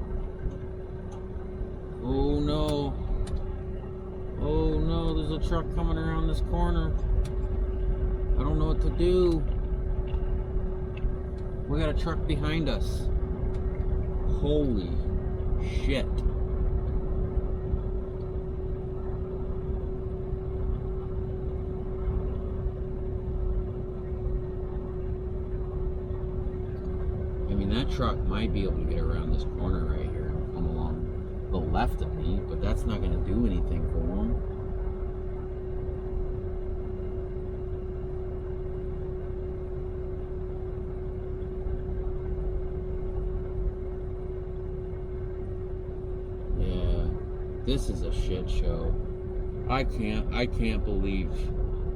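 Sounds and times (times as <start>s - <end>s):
constant hum: 0.0s - 51.9s
diesel engine rumbling: 0.0s - 51.9s.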